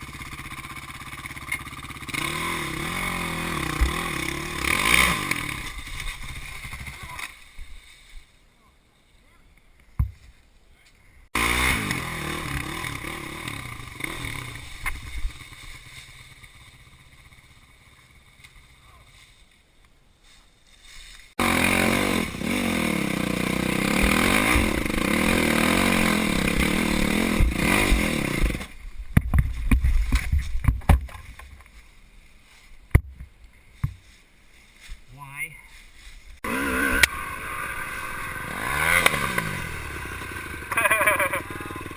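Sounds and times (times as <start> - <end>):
dirt bike engines revving: 0.0 - 7.6, 11.4 - 19.4, 21.4 - 28.8, 36.4 - 41.9.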